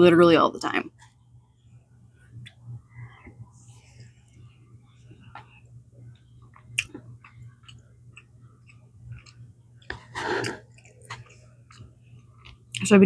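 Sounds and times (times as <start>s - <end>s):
chewing food: 4.0s - 12.9s.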